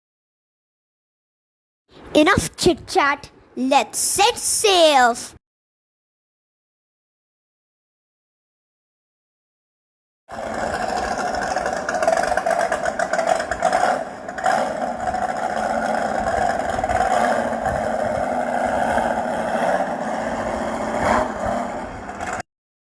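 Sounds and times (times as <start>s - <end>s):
motorboat engine droning: 10.3s - 22.4s.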